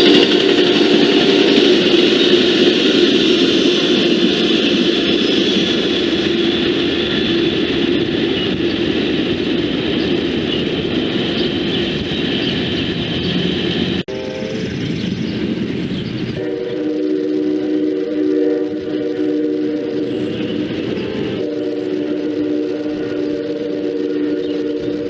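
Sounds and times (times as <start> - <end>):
train wheels rolling on rails: 0.0 - 25.0.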